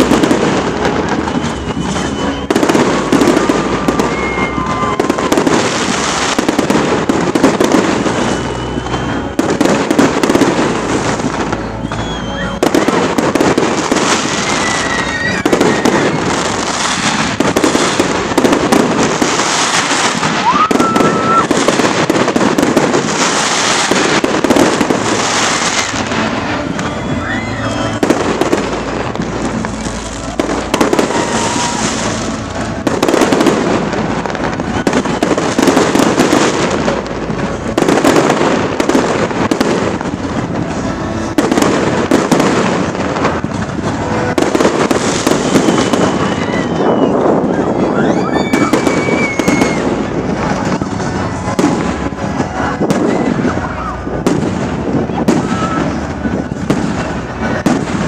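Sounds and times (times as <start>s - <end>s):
fireworks bangs and crackling: 0.0s - 58.0s
fireworks whistling: 0.0s - 58.0s.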